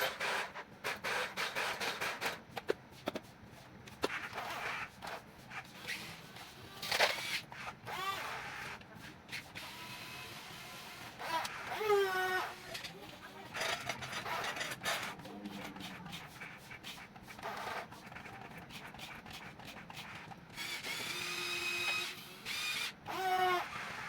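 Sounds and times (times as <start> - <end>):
small electric motors whirring: 5.8 - 16.2, 17.4 - 24.0.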